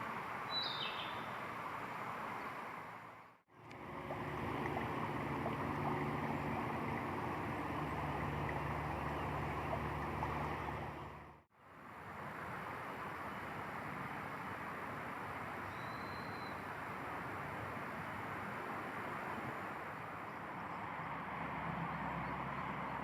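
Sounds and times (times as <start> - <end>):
flowing water rushing: 1.2 - 15.7
low steady hum: 3.5 - 11.4.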